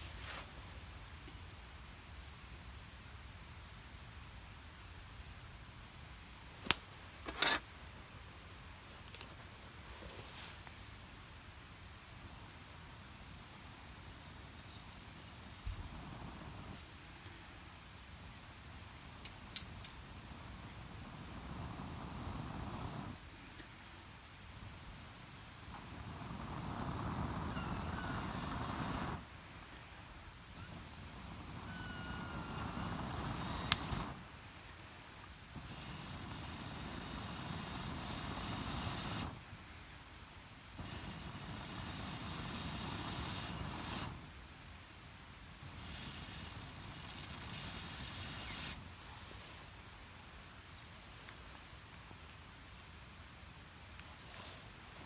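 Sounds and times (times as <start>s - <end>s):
steady hiss: 0.0s - 55.0s
burning wood cracking: 6.5s - 7.6s, 12.0s - 17.4s, 18.0s - 39.9s, 40.7s - 44.8s, 45.5s - 52.9s
blowing on a fire: 12.1s - 17.0s, 18.0s - 23.6s, 24.4s - 39.5s, 40.7s - 44.4s, 45.5s - 49.7s.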